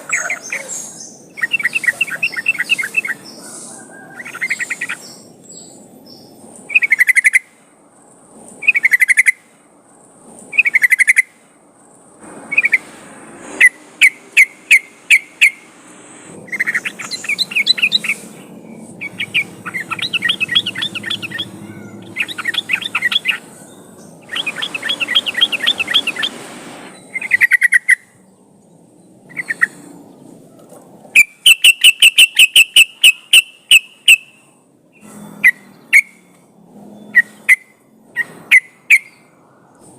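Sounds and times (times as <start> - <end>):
bulbul song: 12.2 - 28.2, 31.2 - 36.2.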